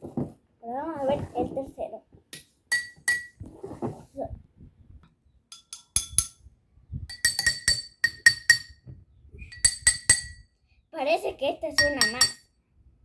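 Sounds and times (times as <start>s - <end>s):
water glasses tapped clinking: 2.7s - 3.4s, 7.1s - 8.8s, 11.8s - 12.4s.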